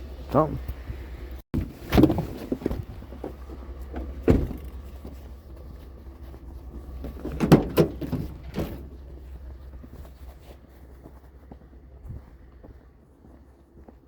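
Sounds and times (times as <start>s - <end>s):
steady low rumble: 2.8s - 14.0s
knocks and thumps: 7.0s - 8.9s.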